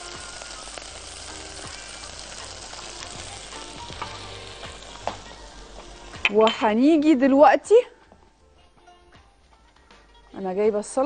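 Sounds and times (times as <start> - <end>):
meat sizzling in hot oil: 0.0 - 7.7.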